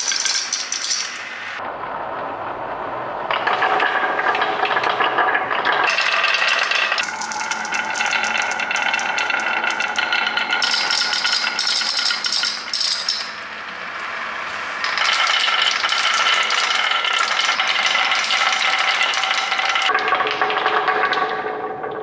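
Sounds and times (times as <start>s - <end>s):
marbles rattling on plastic tracks: 0.0s - 1.3s, 5.9s - 13.4s, 14.8s - 19.9s.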